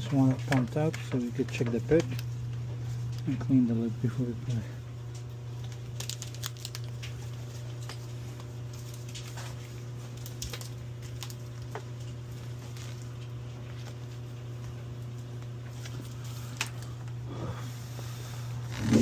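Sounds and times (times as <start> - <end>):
light patters and clicks: 0.0 - 4.4
pump motor humming: 15.9 - 19.0.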